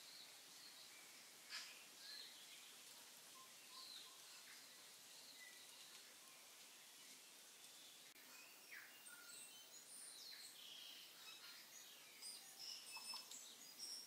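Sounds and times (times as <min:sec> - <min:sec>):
high chirps and short whistles: 0:12.2 - 0:14.0.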